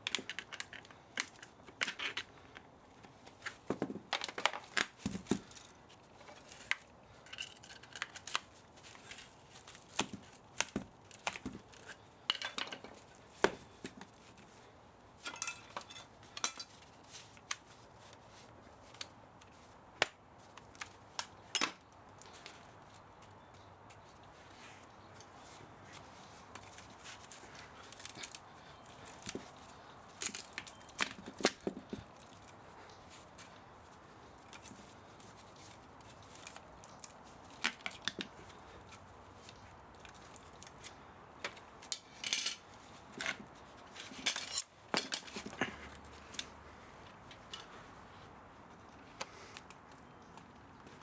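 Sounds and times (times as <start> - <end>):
hand tools clinking on metal: 11.8 - 13.0, 15.2 - 16.8, 41.9 - 43.4, 44.0 - 45.5.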